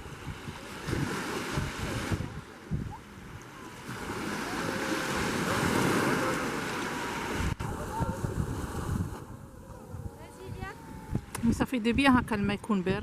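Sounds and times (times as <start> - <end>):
sea waves washing ashore: 0.0 - 13.0
wind buffeting microphone: 0.0 - 13.0.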